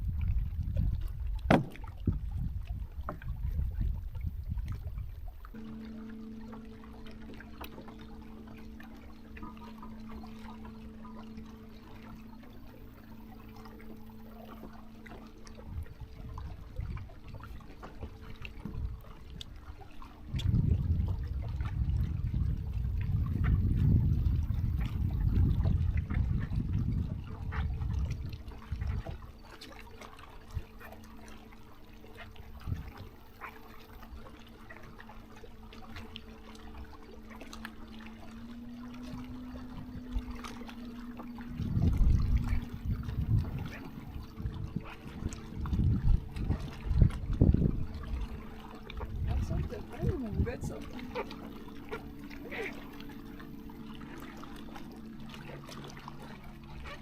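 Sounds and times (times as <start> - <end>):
steady low hum: 0.0 - 57.0
water splashing and trickling: 0.0 - 57.0
low knocks: 1.4 - 2.2.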